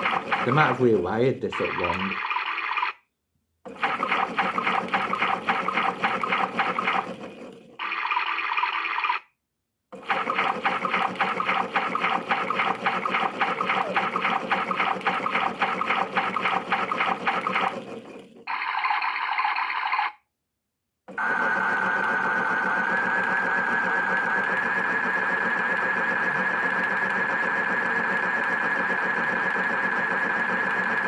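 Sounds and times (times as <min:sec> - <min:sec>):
toy electronic sloshing sound effect: 0:00.0 - 0:03.0, 0:03.7 - 0:09.3, 0:10.0 - 0:20.2.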